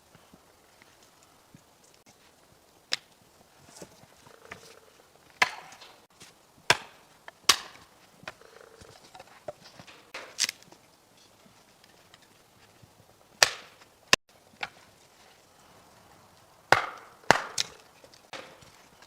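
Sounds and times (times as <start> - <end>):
firewood being chopped: 2.9 - 10.8, 13.4 - 13.9, 14.6 - 14.9, 16.7 - 19.0.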